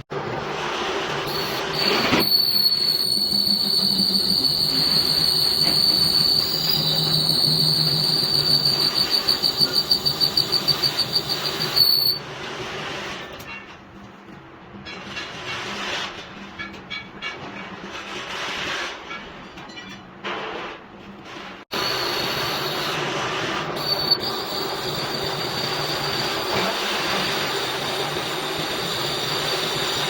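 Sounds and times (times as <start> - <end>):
cutting tool squealing on lathe: 1.3 - 12.2, 21.8 - 30.0
machine humming: 1.3 - 12.2, 21.7 - 30.0.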